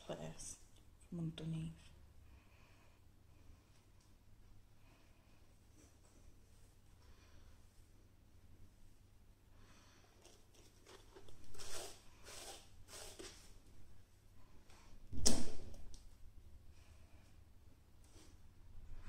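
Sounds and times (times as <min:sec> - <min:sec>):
hair rustling: 0:10.2 - 0:13.6.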